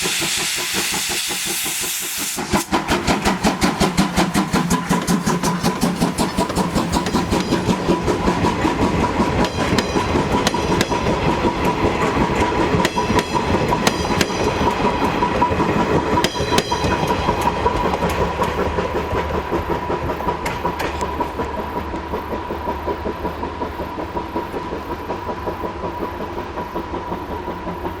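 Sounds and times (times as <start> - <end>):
train wheels clattering over rail joints: 0.0 - 28.0.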